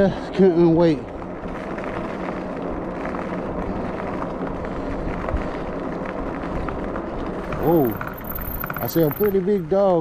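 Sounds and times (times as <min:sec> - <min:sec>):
bike tires rolling on road: 0:00.0 - 0:10.0.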